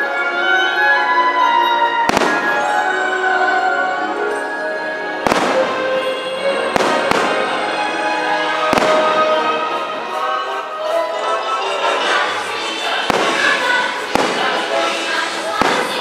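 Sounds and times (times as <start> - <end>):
music playing: 0.0 - 16.0
firework shells bursting: 13.1 - 16.0.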